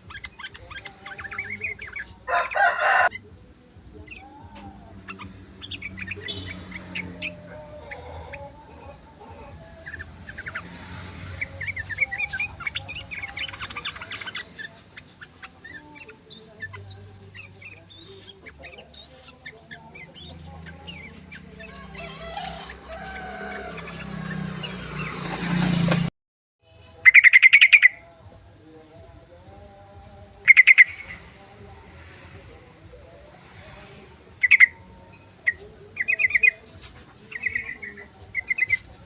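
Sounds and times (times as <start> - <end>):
loud harsh bird chattering: 0.0 - 3.3, 4.1 - 8.6, 9.8 - 25.4, 27.0 - 28.1, 30.4 - 31.4, 33.3 - 39.0.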